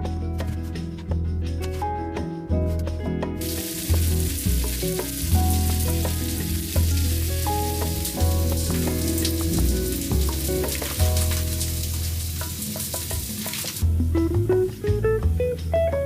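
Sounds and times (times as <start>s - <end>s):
background music: 0.0s - 16.0s
food sizzling in a frying pan: 3.4s - 13.9s.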